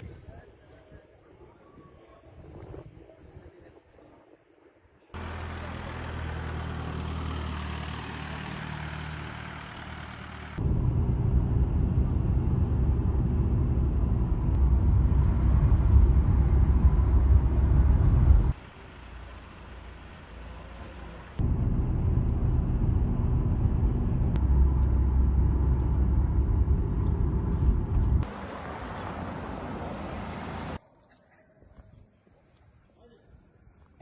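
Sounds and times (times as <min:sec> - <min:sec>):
low road rumble: 0:05.1 - 0:30.8
vehicle engine running: 0:05.2 - 0:30.8.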